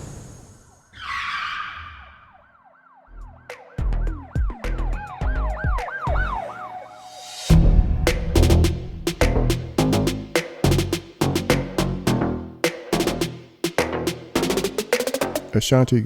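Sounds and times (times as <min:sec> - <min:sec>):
siren-like synth glides: 0:00.5 - 0:07.5
drum beat: 0:03.5 - 0:06.4, 0:07.5 - 0:15.5
whoosh: 0:06.9 - 0:09.8
heavy bass thumps: 0:07.5 - 0:12.4.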